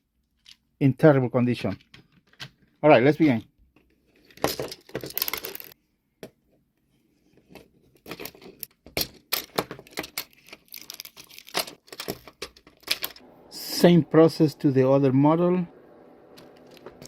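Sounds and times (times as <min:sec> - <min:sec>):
plastic toy being taken apart: 0:07.5 - 0:13.2.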